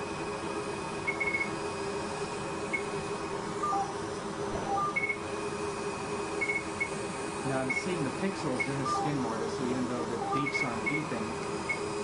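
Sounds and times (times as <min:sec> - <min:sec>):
machine hum: 0:00.0 - 0:12.0
short electronic beeps: 0:06.4 - 0:06.9, 0:10.2 - 0:11.1.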